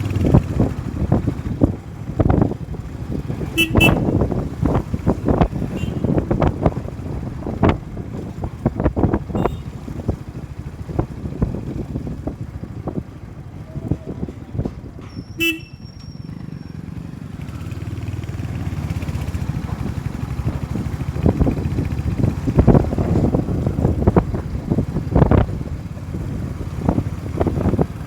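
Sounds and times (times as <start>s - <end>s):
road bumps and knocks: 0.0s - 15.4s, 17.5s - 28.0s
motorcycle engine running: 0.0s - 28.0s
vehicle horn honking: 3.5s - 4.2s, 5.7s - 6.2s, 9.3s - 9.8s, 15.3s - 16.0s.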